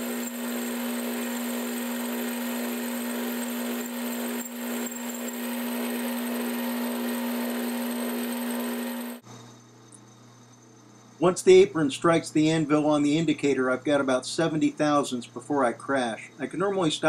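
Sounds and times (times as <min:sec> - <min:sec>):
boring bar cutting steel: 0:00.0 - 0:09.2
metal lathe humming: 0:00.0 - 0:09.2.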